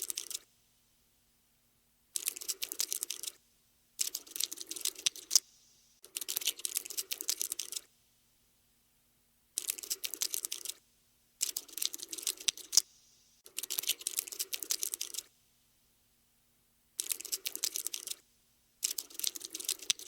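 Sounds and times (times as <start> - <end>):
cockroach scuttling: 4.0 - 5.4, 9.6 - 10.8, 11.4 - 15.3, 17.0 - 18.2, 18.8 - 20.0.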